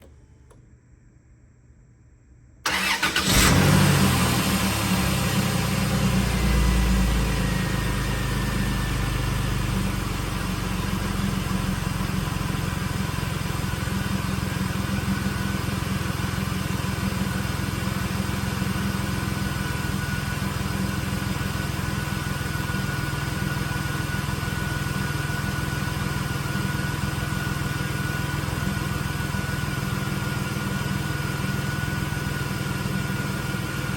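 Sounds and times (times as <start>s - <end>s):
car engine starting and idling: 0.0s - 0.7s, 2.6s - 33.9s.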